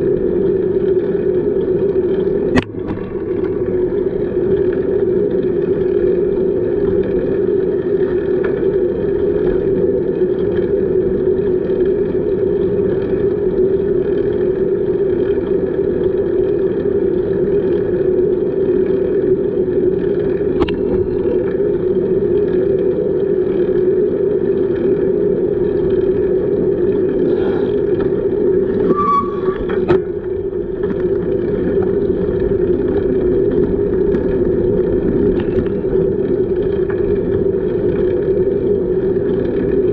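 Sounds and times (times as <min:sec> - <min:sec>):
bicycle tyre road noise: 0:00.0 - 0:39.9
short squeak: 0:28.7 - 0:30.2.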